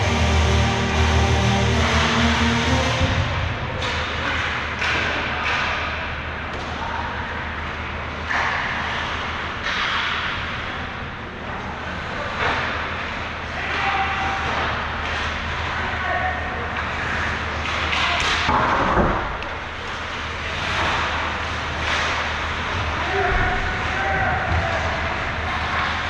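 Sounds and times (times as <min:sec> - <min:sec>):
arena noise: 0:00.0 - 0:26.0
puck and sticks hitting boards: 0:03.8 - 0:06.8, 0:08.2 - 0:10.6, 0:17.5 - 0:26.0.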